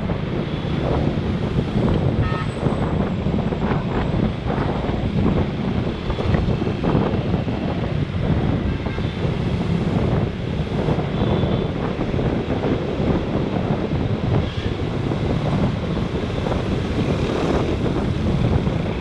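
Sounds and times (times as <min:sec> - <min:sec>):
road traffic: 0:00.0 - 0:19.0
wind buffeting microphone: 0:00.0 - 0:19.0.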